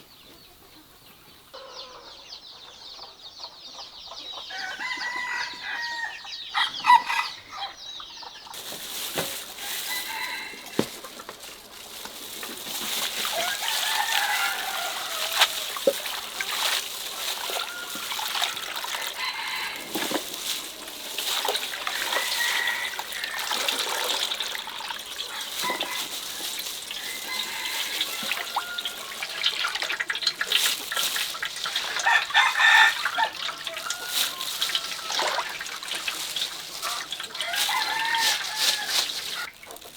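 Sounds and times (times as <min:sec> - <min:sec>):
chickens clucking: 0:00.0 - 0:39.9
rooster crowing: 0:04.5 - 0:07.8, 0:09.6 - 0:11.0, 0:13.2 - 0:21.0, 0:21.8 - 0:24.4, 0:25.2 - 0:29.8, 0:31.9 - 0:35.5, 0:36.8 - 0:39.5.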